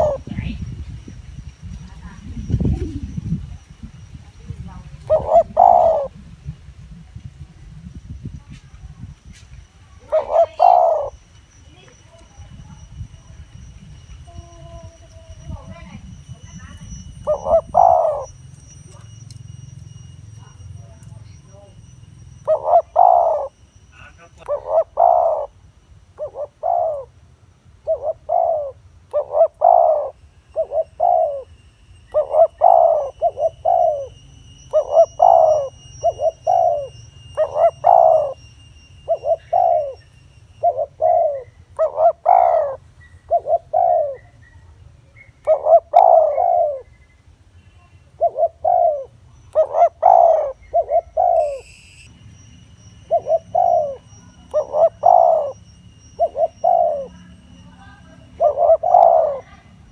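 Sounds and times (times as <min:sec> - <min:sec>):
dove cooing: 0:00.0 - 0:00.8, 0:04.5 - 0:06.2, 0:10.0 - 0:11.2, 0:14.4 - 0:19.1, 0:22.4 - 0:23.6, 0:24.4 - 0:25.5, 0:26.2 - 0:27.1, 0:27.8 - 0:31.5, 0:32.1 - 0:44.4, 0:45.5 - 0:47.0, 0:48.2 - 0:52.1, 0:53.0 - 0:59.9.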